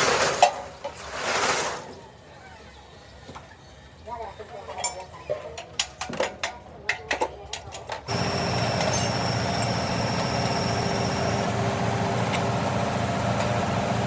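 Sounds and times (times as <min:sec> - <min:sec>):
diesel engine clattering: 0:08.1 - 0:14.0.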